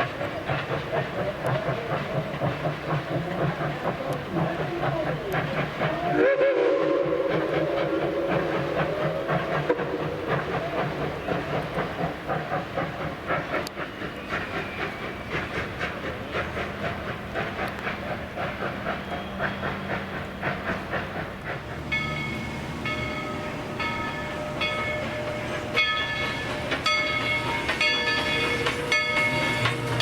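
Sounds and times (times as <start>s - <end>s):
steam hiss: 0.0s - 30.0s
steam locomotive chuffing: 0.0s - 30.0s
train whistle blast: 6.0s - 8.4s.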